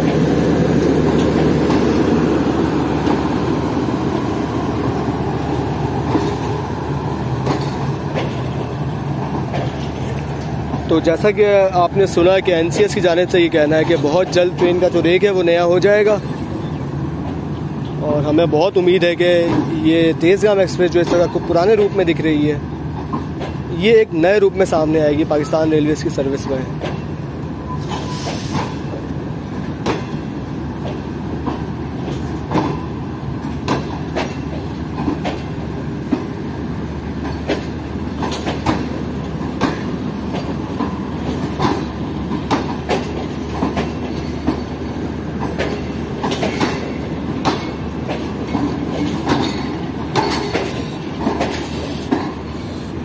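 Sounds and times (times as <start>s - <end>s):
wheels clacking over rail joints: 0.0s - 27.2s, 27.8s - 53.0s
train coaches rolling slowly: 0.0s - 53.0s.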